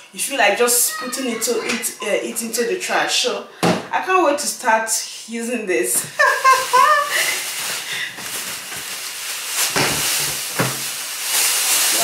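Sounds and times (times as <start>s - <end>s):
packaging rustling and scraping: 6.2s - 12.0s.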